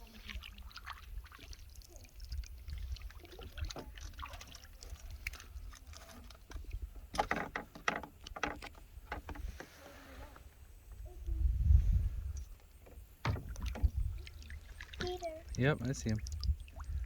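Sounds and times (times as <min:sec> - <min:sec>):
paddle splashing in water: 0:00.0 - 0:10.5, 0:12.4 - 0:17.0
paddle knocking against hull: 0:06.5 - 0:09.8, 0:12.7 - 0:14.3.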